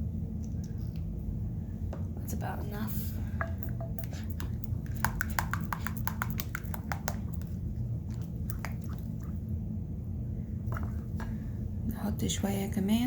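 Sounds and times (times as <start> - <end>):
sticky wet clicks of stirring glue: 3.6 - 9.1.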